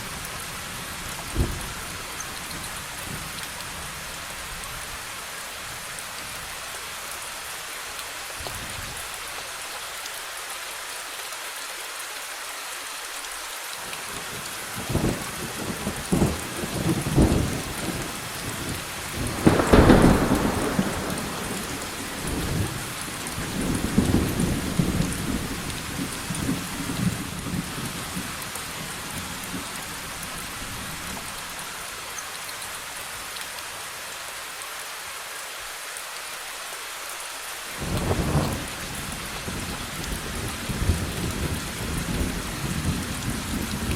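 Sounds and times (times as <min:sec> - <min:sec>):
steady rain: 0:00.0 - 0:43.9
thunder rumbling: 0:14.8 - 0:27.9.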